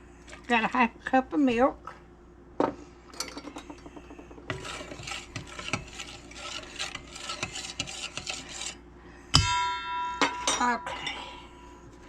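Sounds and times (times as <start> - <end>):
utensil scraping mixing bowl: 3.5 - 8.8.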